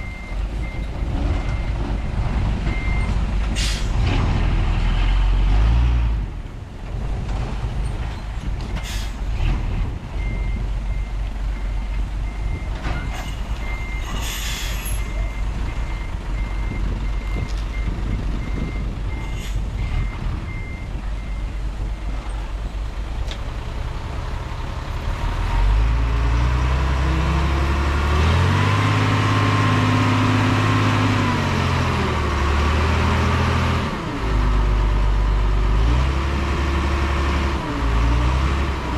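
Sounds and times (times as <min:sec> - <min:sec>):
heavy engine revving: 0:00.0 - 0:06.3, 0:24.9 - 0:38.9
truck engine: 0:00.0 - 0:38.9.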